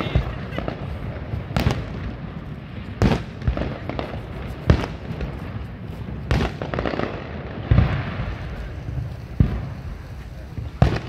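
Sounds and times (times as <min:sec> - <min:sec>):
firework shells booming: 0:00.0 - 0:11.0
small firework pops: 0:02.9 - 0:11.0.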